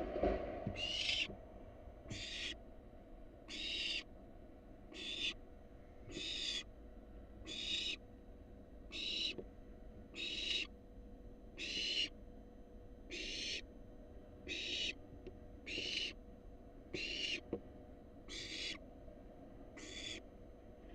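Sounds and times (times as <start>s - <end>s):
owlet rasping begging calls: 0.8s - 1.3s, 2.1s - 2.6s, 3.5s - 4.1s, 4.9s - 5.4s, 6.1s - 6.7s, 7.4s - 8.0s, 8.9s - 9.4s, 10.2s - 10.7s, 11.6s - 12.1s, 13.1s - 13.6s, 14.5s - 15.0s, 15.7s - 16.2s, 17.0s - 17.4s, 18.3s - 18.8s, 19.8s - 20.2s.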